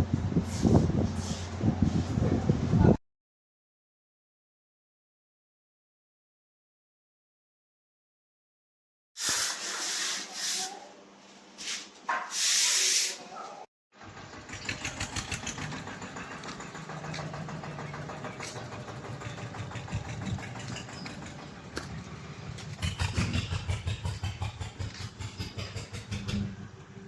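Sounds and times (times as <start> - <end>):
engine running with fast pulse: 14.0 - 27.0.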